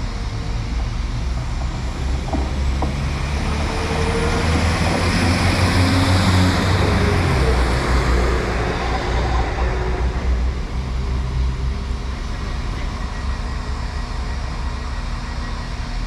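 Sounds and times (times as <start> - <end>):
passing vehicle rumble: 1.2 - 12.7.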